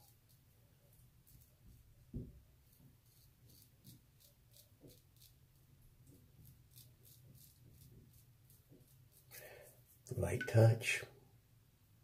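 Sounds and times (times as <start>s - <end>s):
razor scraping stubble: 1.0s - 1.9s, 2.6s - 10.1s.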